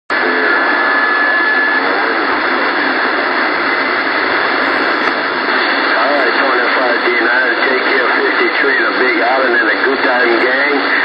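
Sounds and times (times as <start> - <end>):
faint warbling voices: 0.1 - 11.0
radio static hiss: 0.1 - 11.0.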